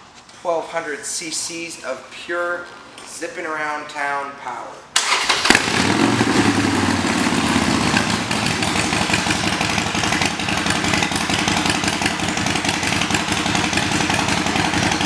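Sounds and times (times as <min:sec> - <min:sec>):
motorcycle engine idling: 0:05.6 - 0:15.0.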